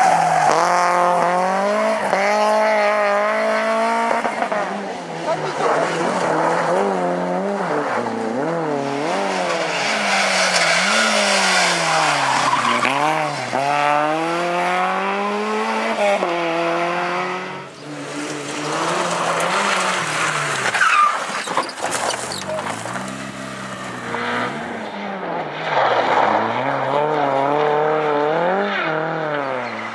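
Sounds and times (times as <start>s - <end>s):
rally car engine revving: 0.0s - 29.9s
tyre noise: 17.7s - 24.8s.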